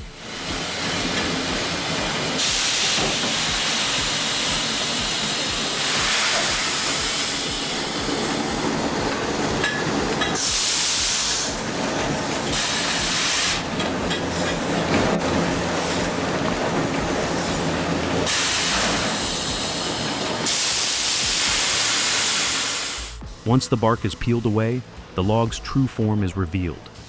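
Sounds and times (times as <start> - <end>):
debarking machinery running: 0.0 - 27.0
bursts of hissing: 18.3 - 23.2.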